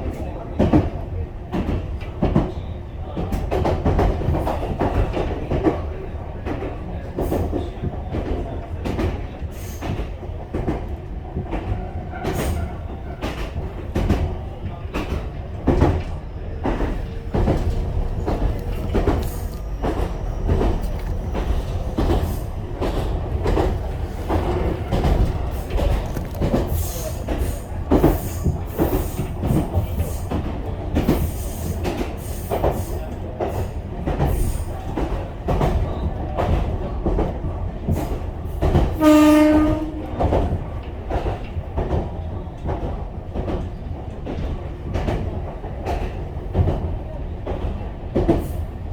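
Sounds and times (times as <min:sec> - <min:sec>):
train rumbling: 0:00.0 - 0:48.9
wheels clacking over rail joints: 0:10.6 - 0:35.7.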